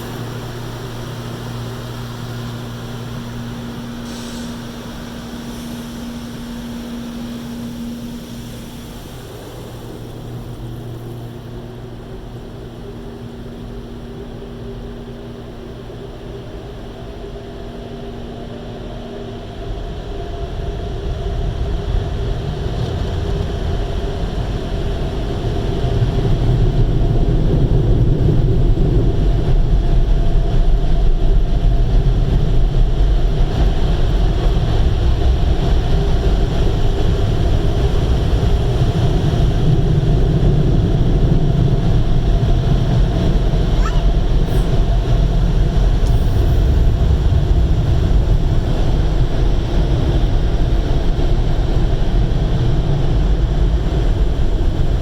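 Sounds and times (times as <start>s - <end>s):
high steady whine: 0.0s - 22.0s, 31.4s - 55.0s
blower fans: 0.0s - 55.0s
low hum: 40.2s - 54.8s.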